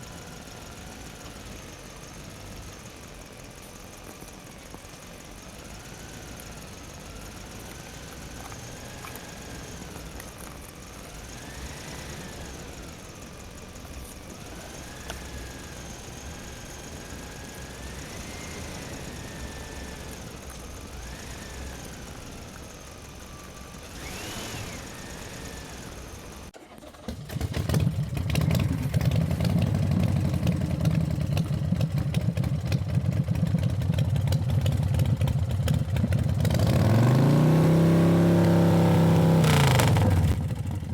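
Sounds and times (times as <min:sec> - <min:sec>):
motor whine: 0:03.6 - 0:26.5
low engine throbbing: 0:27.3 - 0:40.9.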